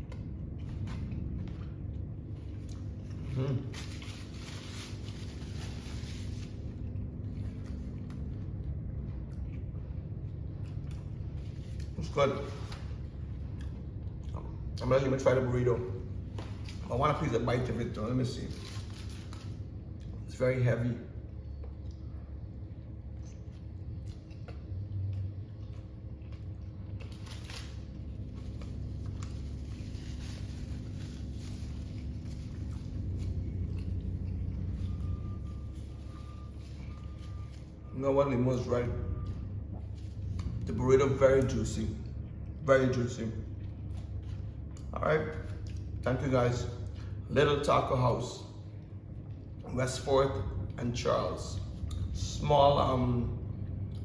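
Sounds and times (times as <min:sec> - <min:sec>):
faint hum: 0:00.0 - 0:54.0
low background rumble: 0:00.0 - 0:54.0
chewing and rustling: 0:21.3 - 0:37.9.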